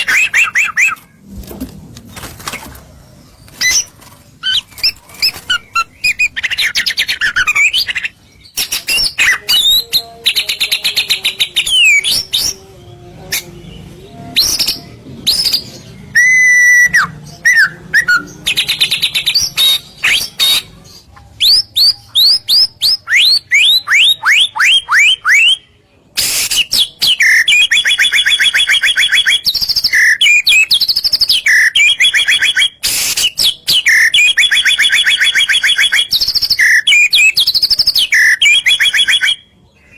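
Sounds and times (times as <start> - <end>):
bird singing whistles and trills: 14.3 - 20.6, 21.4 - 39.9.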